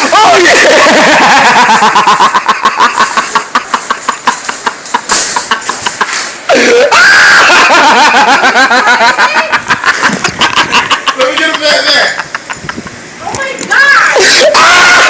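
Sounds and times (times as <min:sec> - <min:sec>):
man laughing hard: 0:00.0 - 0:13.0, 0:14.2 - 0:15.0
loud high wordless yell: 0:06.5 - 0:07.8, 0:13.6 - 0:15.0.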